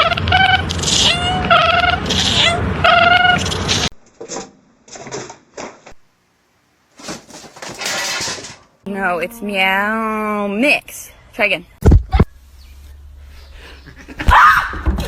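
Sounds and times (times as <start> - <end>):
cat meowing loudly: 0.0 - 3.5.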